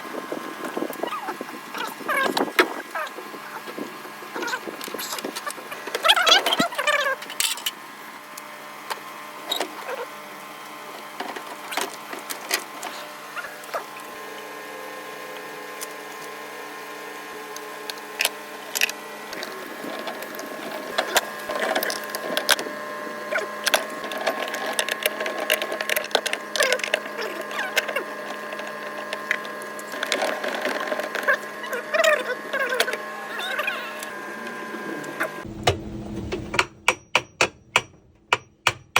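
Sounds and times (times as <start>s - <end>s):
machine hum: 32.1s - 38.9s.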